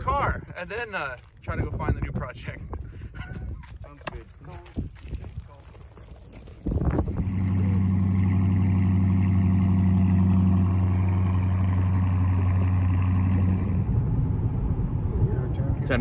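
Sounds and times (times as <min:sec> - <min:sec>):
car engine starting and idling: 0:07.0 - 0:16.0.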